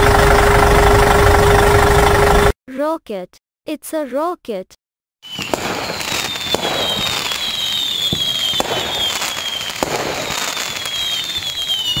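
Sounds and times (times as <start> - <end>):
falling whistles: 5.2 - 12.0
sharp pops: 5.3 - 11.3
rocket rushing hiss: 5.3 - 12.0.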